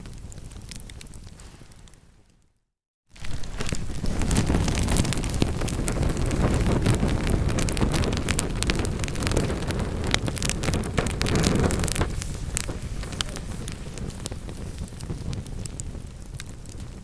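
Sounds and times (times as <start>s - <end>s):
wood fire crackling: 0.0s - 2.4s, 3.1s - 17.0s.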